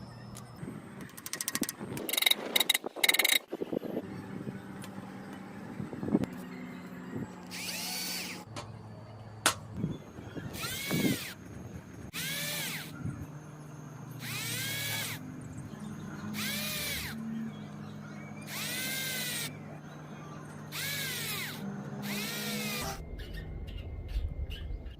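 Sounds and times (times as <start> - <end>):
steady low hum: 0.0 - 24.9
power drill bursts: 10.6 - 11.4, 12.1 - 12.9, 14.2 - 15.2, 16.4 - 17.2, 18.5 - 19.5, 20.7 - 23.0.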